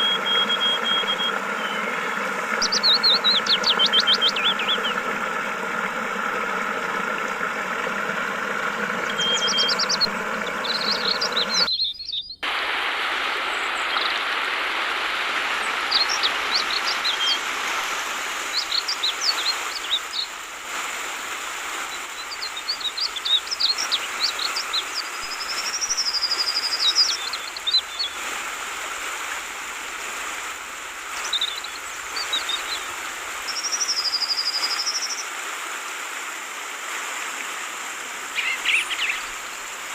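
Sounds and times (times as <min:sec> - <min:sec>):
flowing water: 0:00.0 - 0:11.8, 0:12.4 - 0:39.9
birds chirping: 0:00.0 - 0:12.4, 0:15.6 - 0:17.5, 0:18.3 - 0:20.4, 0:21.9 - 0:28.2, 0:31.2 - 0:35.2, 0:38.3 - 0:39.9.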